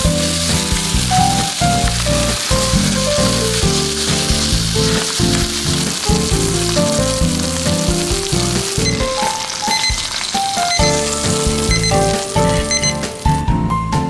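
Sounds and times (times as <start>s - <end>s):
background music: 0.0s - 14.0s
meat sizzling in a hot pan: 0.0s - 14.0s.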